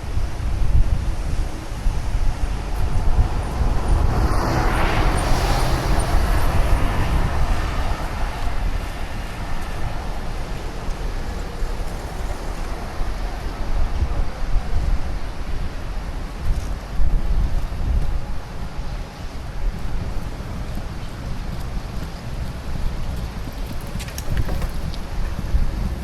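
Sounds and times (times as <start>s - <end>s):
loud swell of noise: 0.0s - 20.6s
wind buffeting microphone: 0.0s - 26.0s.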